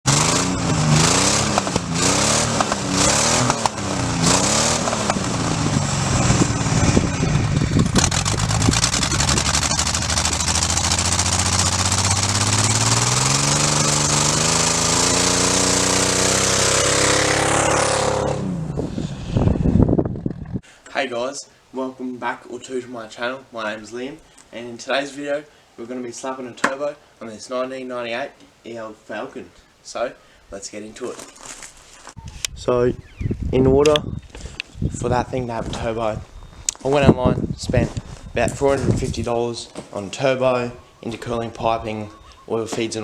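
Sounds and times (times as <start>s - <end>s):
car engine revving: 0.0s - 19.6s.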